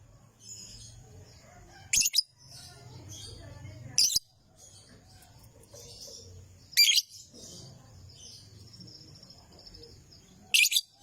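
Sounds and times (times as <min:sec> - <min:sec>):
soft bird twittering: 0:00.4 - 0:11.0
lovebird shrill chirps: 0:01.9 - 0:02.4, 0:06.7 - 0:07.2, 0:10.5 - 0:11.0.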